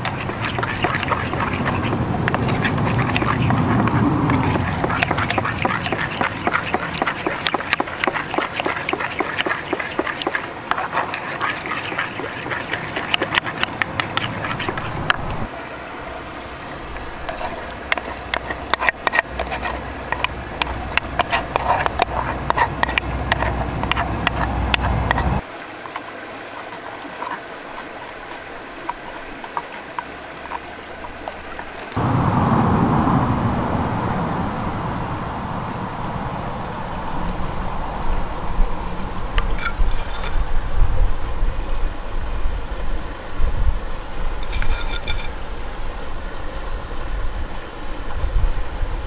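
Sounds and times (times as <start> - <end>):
steady rushing noise: 0.0 - 25.4, 32.0 - 42.6.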